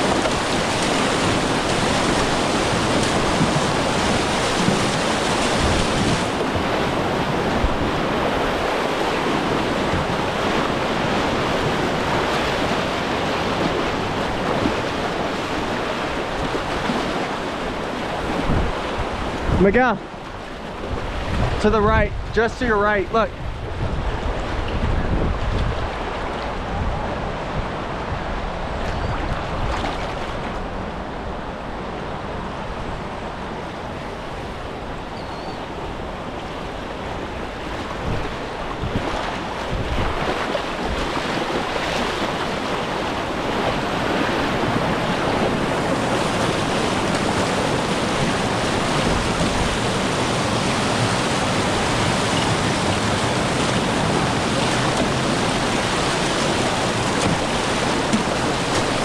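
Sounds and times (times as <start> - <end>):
water splashes: 0.0 - 21.7, 35.9 - 59.0
rushing river water: 0.0 - 59.0.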